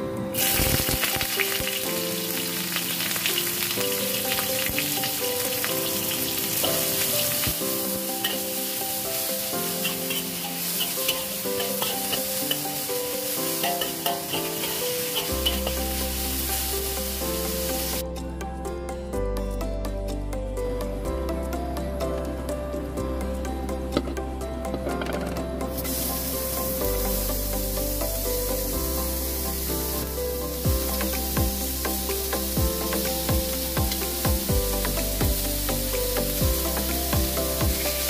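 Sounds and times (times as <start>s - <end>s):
onion sizzling in a pan: 0.4s - 18.0s, 25.7s - 38.0s.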